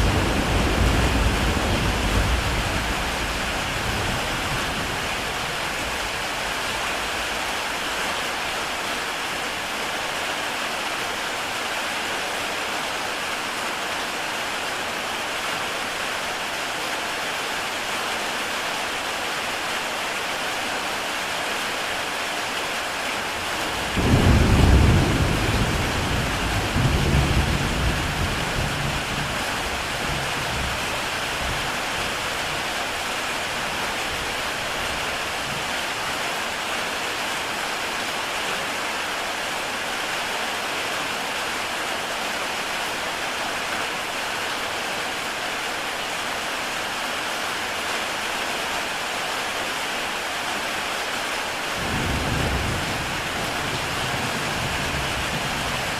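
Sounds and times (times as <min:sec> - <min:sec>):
thunder rumbling: 0:00.0 - 0:07.2, 0:23.7 - 0:30.8
heavy rain on a tile roof: 0:00.0 - 0:55.9.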